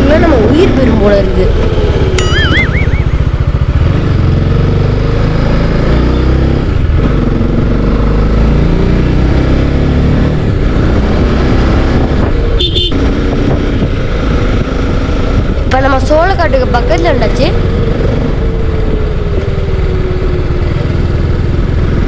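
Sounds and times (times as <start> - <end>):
motorcycle engine revving: 0.0 - 15.7.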